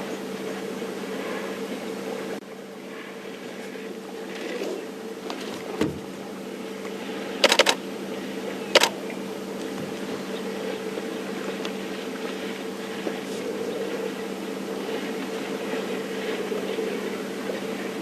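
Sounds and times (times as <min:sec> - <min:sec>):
sharp clicks: 0:07.4 - 0:07.8, 0:08.8 - 0:09.0.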